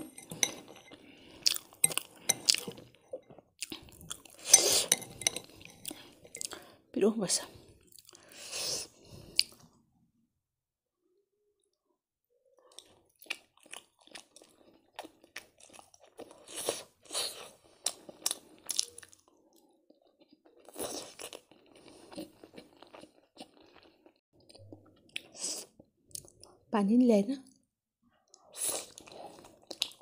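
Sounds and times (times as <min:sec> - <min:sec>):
person chewing noodles: 0:00.0 - 0:06.8, 0:07.8 - 0:09.6, 0:12.7 - 0:26.6, 0:28.3 - 0:30.0.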